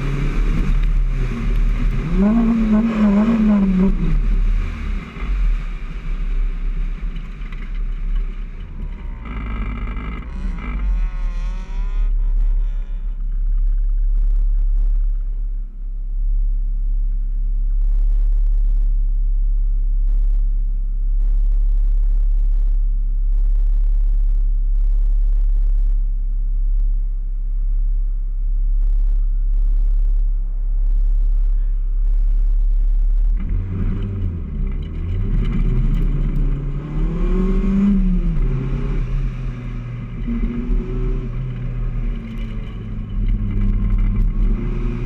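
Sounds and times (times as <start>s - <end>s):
car engine idling: 12.1s - 21.5s, 25.7s - 45.0s.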